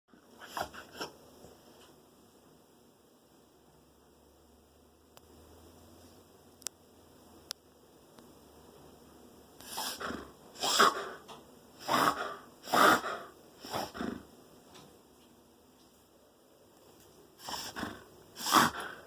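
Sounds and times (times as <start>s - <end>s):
dog reverse sneezing: 9.6s - 11.2s, 11.8s - 14.2s, 17.4s - 19.0s.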